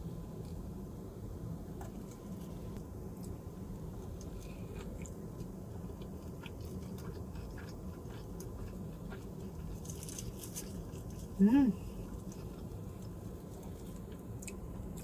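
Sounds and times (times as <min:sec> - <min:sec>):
steady low hum: 0:00.0 - 0:15.0
person chewing food: 0:04.0 - 0:11.4, 0:12.0 - 0:15.0.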